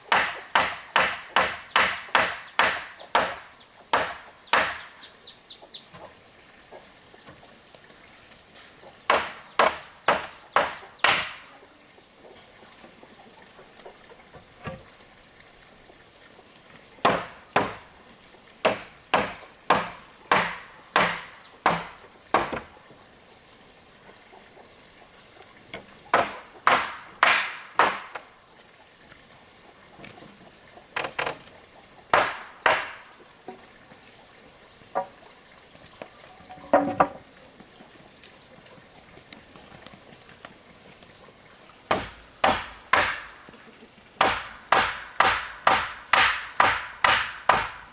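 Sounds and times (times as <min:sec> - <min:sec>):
hand tool striking wood: 0:00.0 - 0:05.0, 0:09.0 - 0:11.5, 0:17.0 - 0:18.0, 0:18.6 - 0:22.7, 0:26.1 - 0:28.3, 0:32.1 - 0:33.6, 0:41.9 - 0:43.6, 0:44.2 - 0:47.9.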